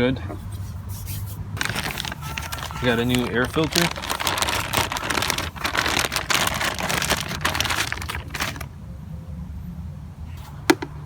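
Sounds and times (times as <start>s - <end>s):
air filter packaging crinkling: 1.6s - 8.7s.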